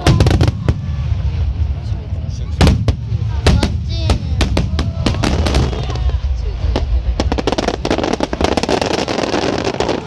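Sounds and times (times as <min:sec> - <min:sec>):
deep rumble: 0:00.0 - 0:09.0
fireworks bursting: 0:00.0 - 0:10.0
fireworks crackling: 0:00.0 - 0:10.0.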